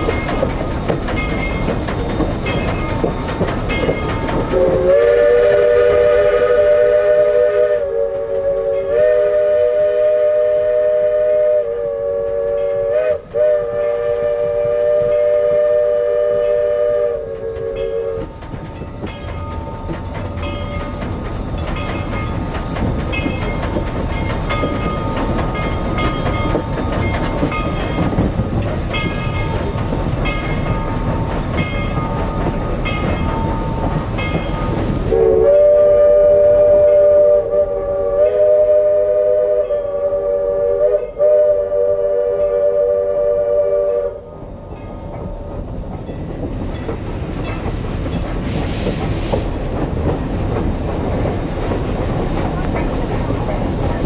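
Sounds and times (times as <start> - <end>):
train running with rumble and clicks: 0.0 - 54.0
chime steam whistle: 2.4 - 18.4, 28.9 - 45.1.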